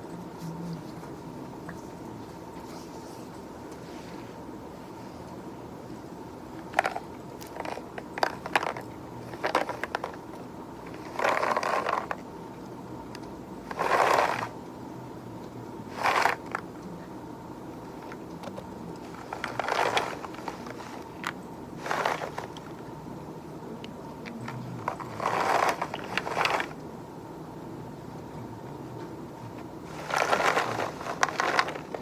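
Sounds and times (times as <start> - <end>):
scraping crunching bursts: 13.7 - 14.5, 19.1 - 21.2, 21.8 - 22.7, 24.8 - 26.8, 29.9 - 32.0.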